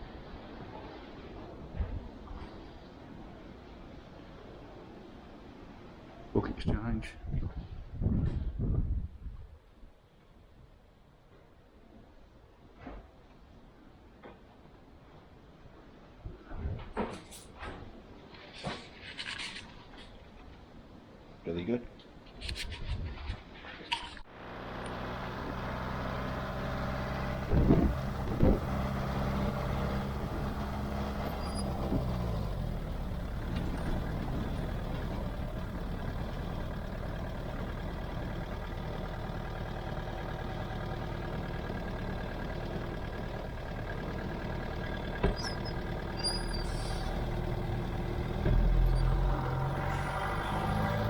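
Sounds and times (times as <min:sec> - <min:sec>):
truck engine running: 0:24.3 - 0:51.0.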